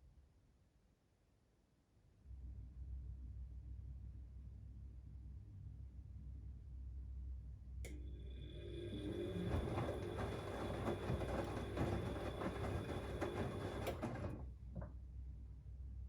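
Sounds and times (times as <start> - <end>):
washing machine running: 7.9 - 14.9.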